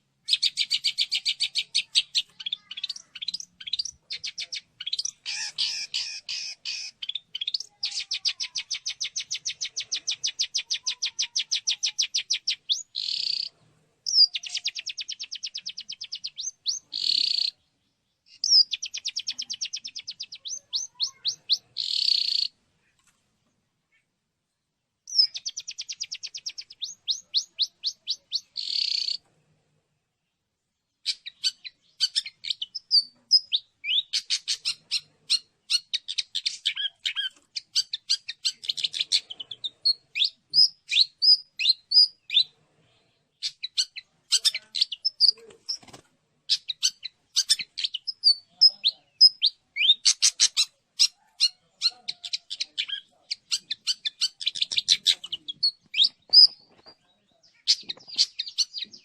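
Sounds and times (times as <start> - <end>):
shrike chirping and trilling: 0.2 - 17.6, 18.3 - 22.6, 25.1 - 29.2, 31.0 - 42.6, 43.4 - 59.0
harsh bird rasp: 0.4 - 12.0, 34.0 - 40.7, 43.4 - 56.6.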